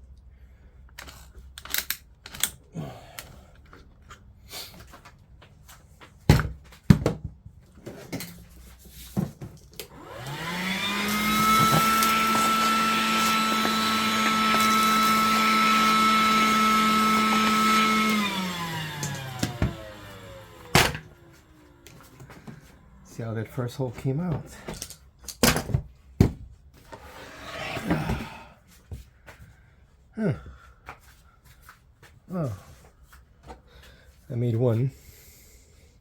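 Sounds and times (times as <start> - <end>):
power tool motor: 9.8 - 22.6.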